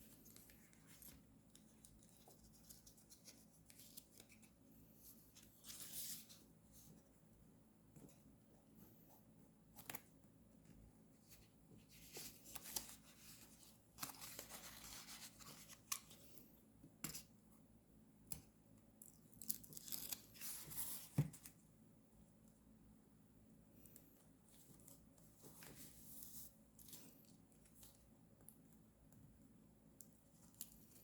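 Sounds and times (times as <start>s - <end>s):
paper rustling: 11.3s - 16.2s.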